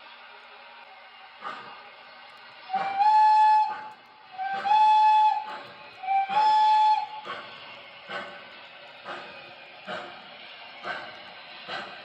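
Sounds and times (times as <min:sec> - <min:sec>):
model train steam whistle: 0:02.6 - 0:08.2.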